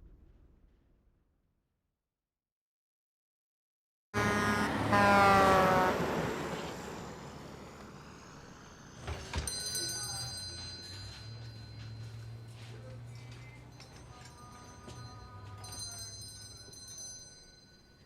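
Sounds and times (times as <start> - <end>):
rush with falling ringing tones: 6.2 - 18.0
small bell ringing: 9.1 - 18.0.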